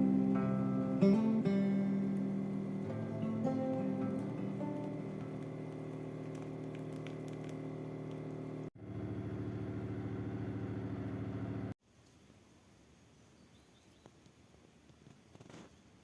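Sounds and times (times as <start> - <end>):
motor running: 0.0 - 11.8.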